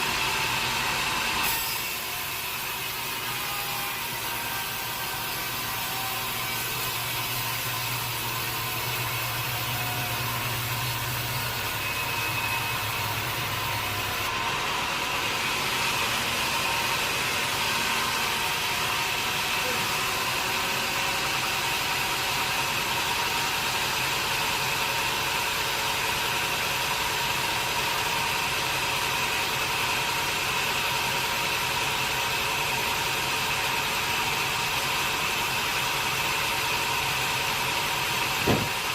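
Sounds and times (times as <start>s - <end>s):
machinery high whine: 0.0s - 24.8s.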